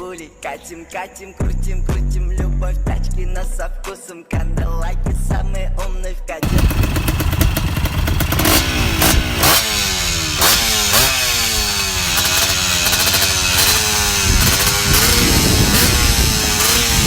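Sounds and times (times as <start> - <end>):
motocross bike engine accelerating: 6.4 - 17.0.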